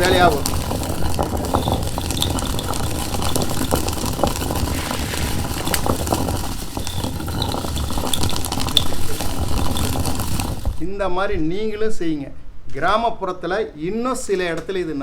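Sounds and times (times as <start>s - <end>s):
stone grinding on stone: 0.0s - 10.8s
dried pulses crackling: 0.0s - 11.0s.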